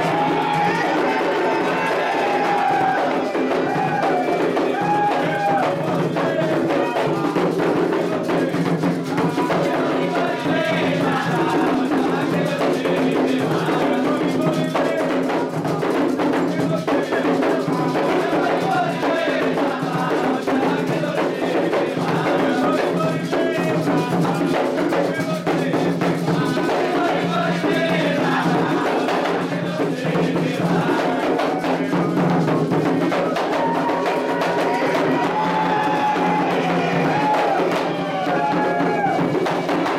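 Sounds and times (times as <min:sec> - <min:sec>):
hand drums playing fast rhythm: 0:00.0 - 0:39.9
voices singing a chant: 0:00.0 - 0:39.9.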